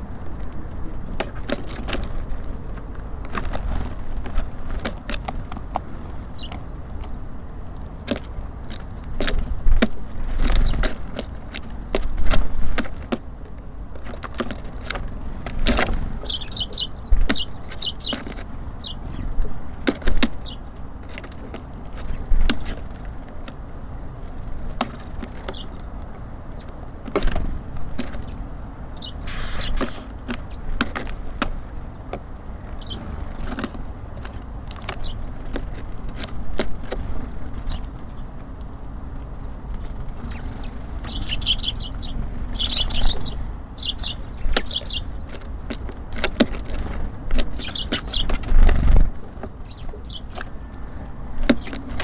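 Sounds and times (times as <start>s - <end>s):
birds pecking and landing: 0.0s - 52.0s
steady low rumble: 0.0s - 52.0s
high bird chirps: 6.3s - 6.6s, 16.2s - 18.2s, 18.8s - 19.2s, 20.4s - 20.6s, 25.5s - 26.6s, 29.0s - 29.9s, 32.8s - 33.0s, 37.6s - 38.5s, 39.8s - 45.2s, 47.5s - 48.4s, 49.7s - 50.5s.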